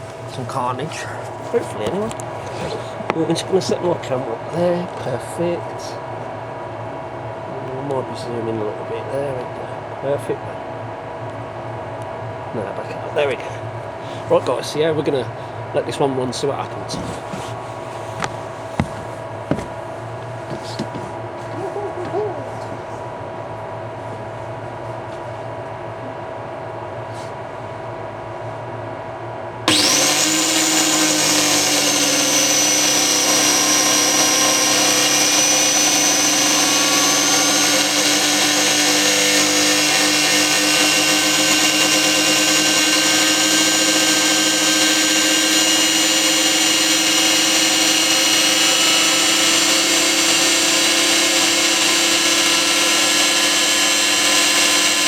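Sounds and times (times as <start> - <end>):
pressure washer motor whining: 29.7 - 55.0.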